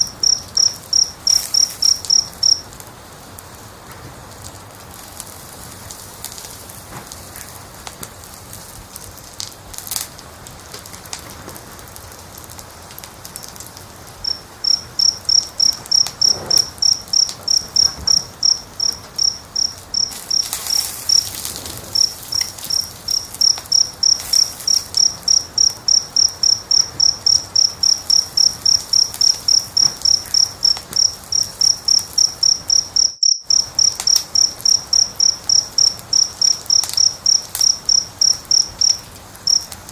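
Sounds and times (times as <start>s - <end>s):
cricket chirping: 0.0s - 2.8s, 13.4s - 39.9s
wood fire crackling: 0.0s - 39.9s.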